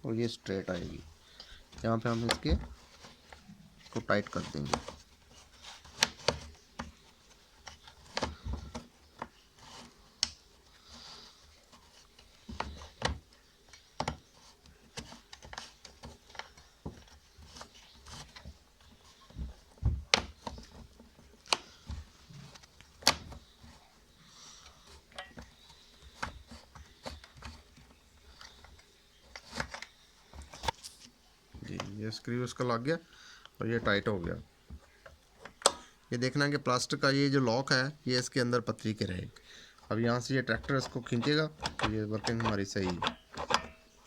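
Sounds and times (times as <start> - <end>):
tool and parts clicking: 40.6 - 44.0.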